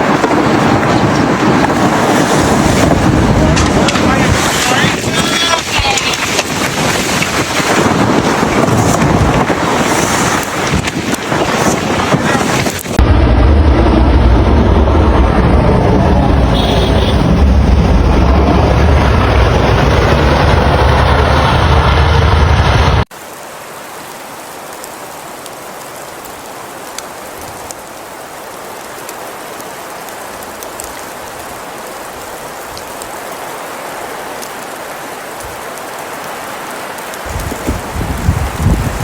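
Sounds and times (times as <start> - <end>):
hiss of falling precipitation: 0.0 - 17.5, 18.1 - 39.0
loud wind rumble: 0.0 - 23.1, 37.2 - 39.0.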